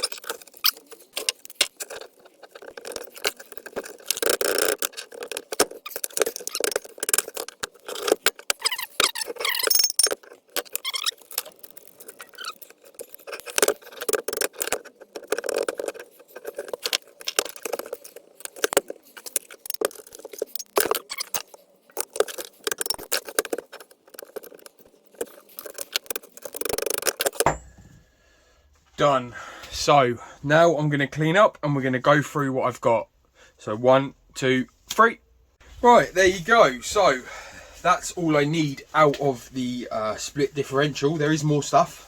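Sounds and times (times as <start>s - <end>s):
steel parts clinking and scraping: 0.0s - 28.0s
short squeaks: 2.8s - 15.7s, 20.6s - 21.5s.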